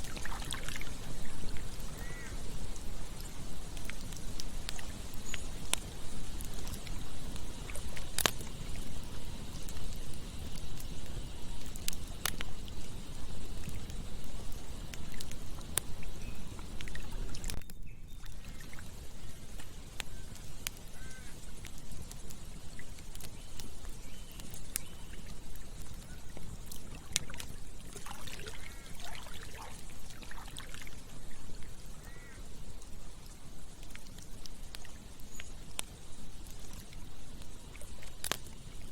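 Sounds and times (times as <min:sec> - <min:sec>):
flowing water rushing: 0:00.0 - 0:02.6, 0:26.9 - 0:32.4
campfire crackling and popping: 0:00.0 - 0:38.9.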